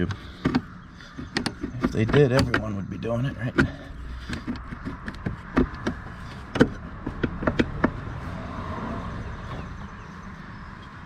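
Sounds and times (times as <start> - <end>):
sharp clicks and knocks: 0.0 - 8.1.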